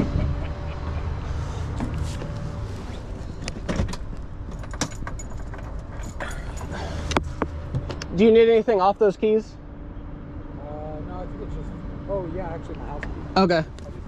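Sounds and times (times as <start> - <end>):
low engine hum: 0.0 - 14.0
keys jingling: 3.2 - 7.4.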